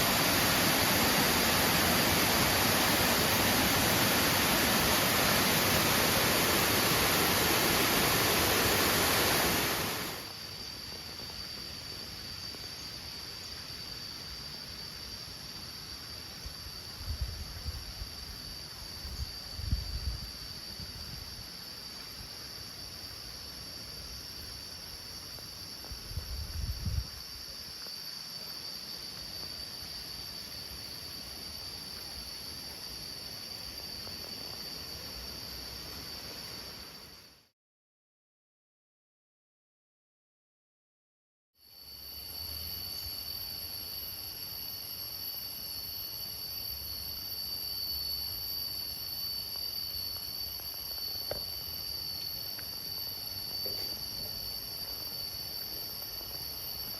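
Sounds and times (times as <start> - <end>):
waterfall rushing: 0.0 - 10.2
high-pitched insect drone: 0.0 - 10.7, 41.6 - 56.9.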